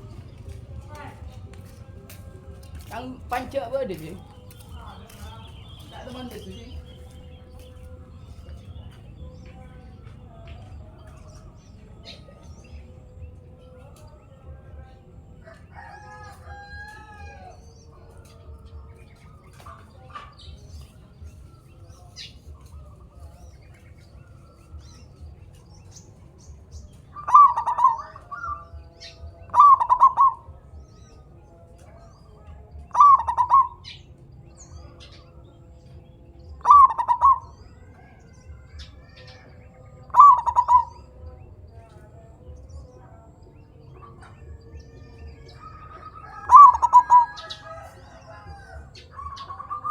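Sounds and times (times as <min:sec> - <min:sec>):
dove cooing: 0:27.2 - 0:28.9, 0:29.5 - 0:30.6, 0:32.9 - 0:34.0, 0:36.6 - 0:39.2, 0:40.1 - 0:41.2, 0:44.0 - 0:49.9.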